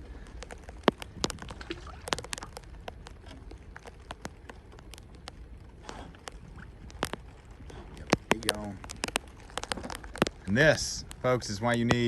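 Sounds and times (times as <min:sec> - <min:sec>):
raindrops tapping on hard surface: 0:00.0 - 0:12.0.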